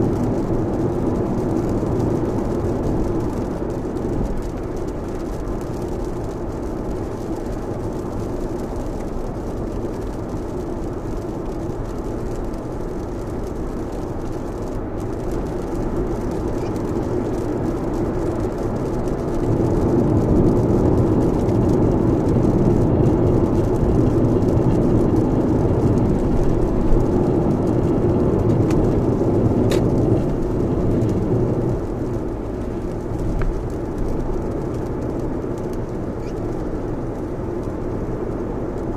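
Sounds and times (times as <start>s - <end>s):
rain on car: 0.0s - 38.9s
tyres on wet road: 0.0s - 38.9s.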